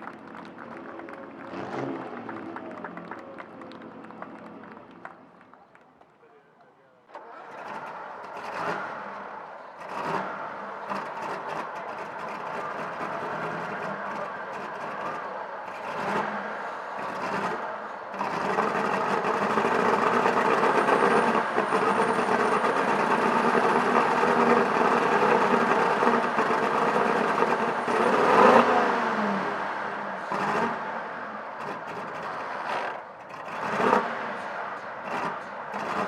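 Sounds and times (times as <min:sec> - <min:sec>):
car engine running: 0:07.2 - 0:36.0.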